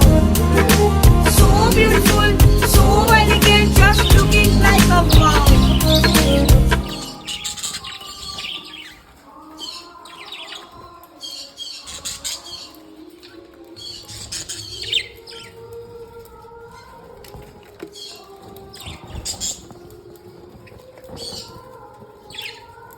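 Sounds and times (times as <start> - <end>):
song music: 0.0 - 7.5
budgerigars chirping and chattering: 1.3 - 9.0, 9.6 - 15.6, 18.0 - 19.8, 21.1 - 21.6, 22.3 - 22.7.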